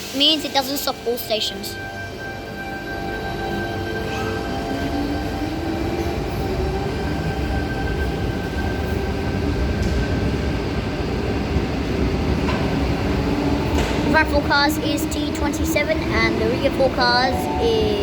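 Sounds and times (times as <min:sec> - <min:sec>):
wheels rumbling on rail: 0:01.9 - 0:18.0.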